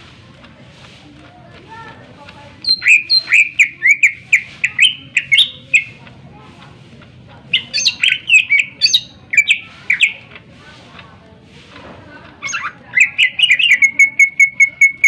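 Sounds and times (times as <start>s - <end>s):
bird singing sharp notes: 2.6s - 6.0s, 12.4s - 15.0s.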